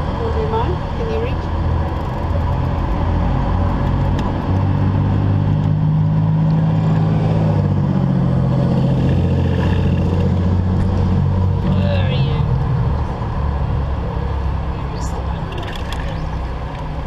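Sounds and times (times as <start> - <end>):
car engine running: 0.0 - 17.0
road noise: 0.0 - 17.0.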